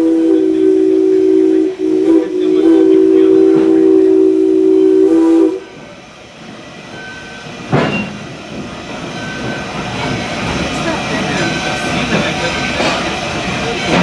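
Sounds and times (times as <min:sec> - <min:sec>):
steam locomotive whistle: 0:00.0 - 0:05.8
train running noise: 0:00.0 - 0:14.0.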